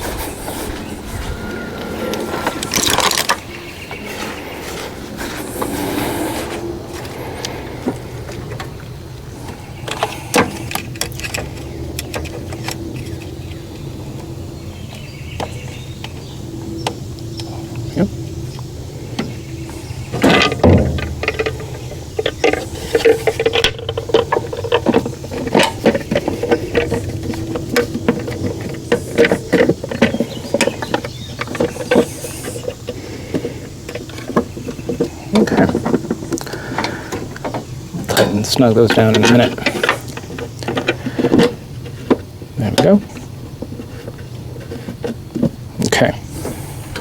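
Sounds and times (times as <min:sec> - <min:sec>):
hand tools and metal parts clinking: 0:00.0 - 0:13.3, 0:19.1 - 0:47.0
low hum: 0:00.0 - 0:32.7.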